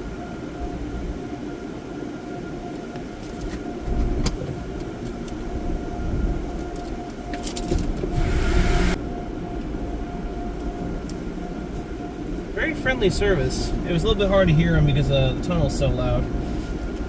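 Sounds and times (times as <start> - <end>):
constant machine whine: 0.0 - 17.0
car wash machinery rumbling: 7.9 - 9.2.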